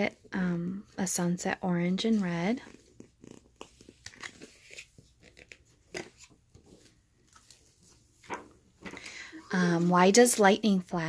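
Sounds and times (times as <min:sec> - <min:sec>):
book pages and flaps handled: 0:01.8 - 0:10.6.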